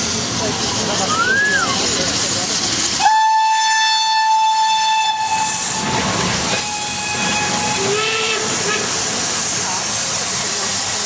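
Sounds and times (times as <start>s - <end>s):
steam hissing: 0.0s - 11.0s
steam locomotive whistle: 3.0s - 5.8s, 6.5s - 9.0s.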